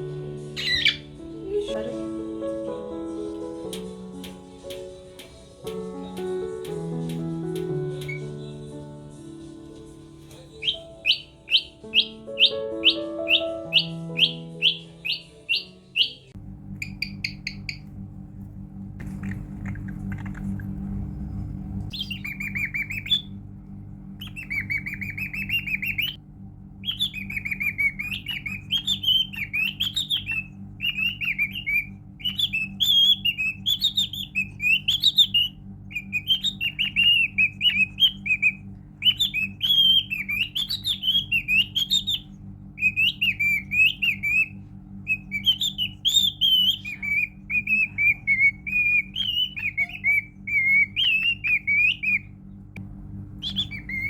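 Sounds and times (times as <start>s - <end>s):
steady low hum: 0.0s - 54.0s
cockatiel warbling whistles: 0.6s - 1.1s, 10.6s - 17.8s, 26.8s - 52.3s, 53.4s - 54.0s.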